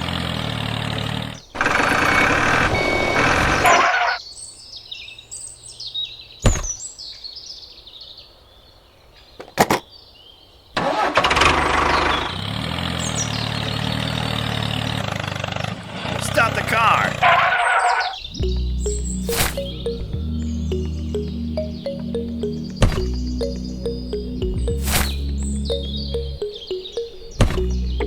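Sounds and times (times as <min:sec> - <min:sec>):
high chirps: 0:18.2 - 0:28.0.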